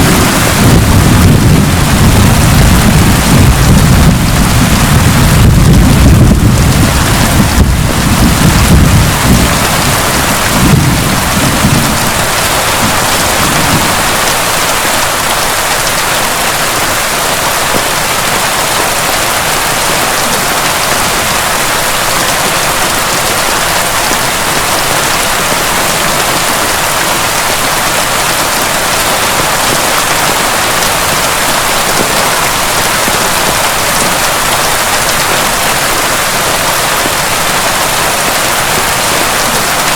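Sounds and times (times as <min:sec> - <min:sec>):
low thunder rumble: 0:00.0 - 0:14.6
heavy rain pouring: 0:00.0 - 0:39.9.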